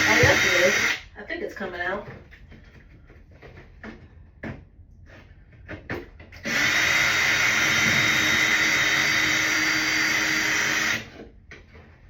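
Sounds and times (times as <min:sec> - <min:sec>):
power drill backing out screw: 0:00.0 - 0:01.0, 0:06.4 - 0:11.2.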